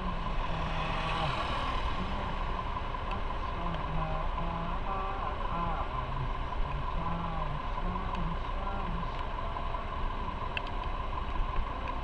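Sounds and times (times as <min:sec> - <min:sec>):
wind rush over microphone: 0:00.0 - 0:04.6
motorcycle running: 0:00.0 - 0:12.0.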